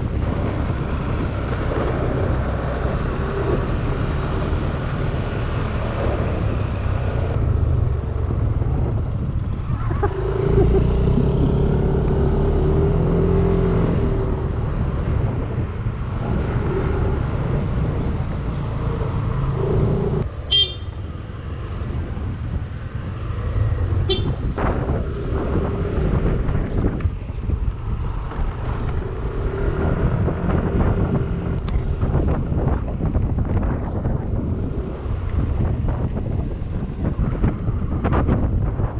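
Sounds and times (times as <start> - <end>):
vehicle horn toots: 20.5 - 21.0, 24.1 - 24.4.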